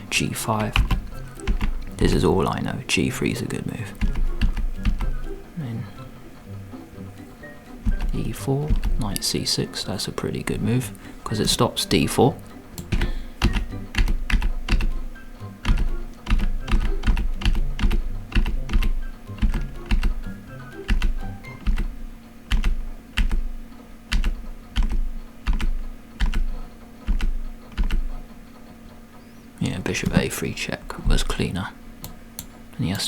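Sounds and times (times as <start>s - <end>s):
faint electrical hum: 0.0s - 33.0s
computer keys clicking: 0.6s - 1.9s, 4.0s - 5.2s, 12.8s - 15.0s, 15.6s - 20.2s, 20.8s - 21.9s, 22.5s - 23.5s, 24.1s - 28.1s.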